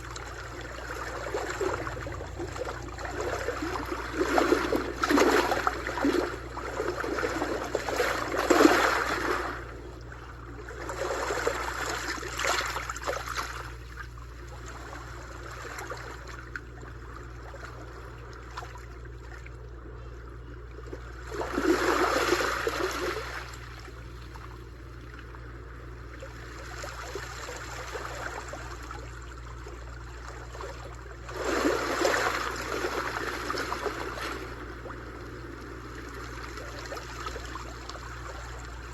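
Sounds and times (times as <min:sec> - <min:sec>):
sea waves washing onto shore: 0:31.2 - 0:38.9.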